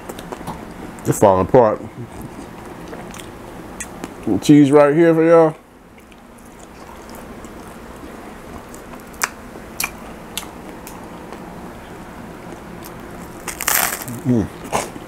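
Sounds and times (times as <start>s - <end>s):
chewing food: 2.0s - 4.3s, 5.9s - 11.5s
loud bite: 12.8s - 15.0s.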